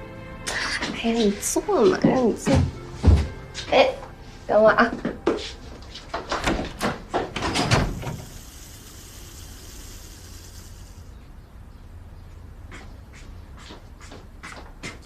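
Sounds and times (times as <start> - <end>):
door knocks and clunks: 2.4 - 3.4, 6.2 - 8.2
soft hiss: 7.9 - 11.2.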